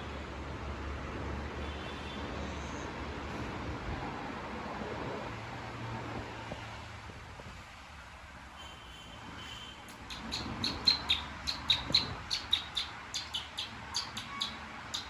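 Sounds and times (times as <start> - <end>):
small bird chirping: 9.9 - 15.0.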